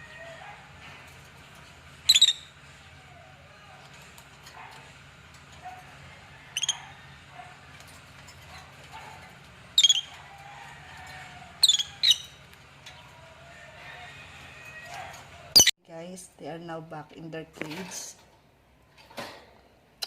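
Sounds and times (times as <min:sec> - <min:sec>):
birds giving shrill chirps: 0:02.0 - 0:02.6, 0:06.6 - 0:07.0, 0:09.8 - 0:10.2, 0:11.6 - 0:13.1, 0:15.5 - 0:15.7.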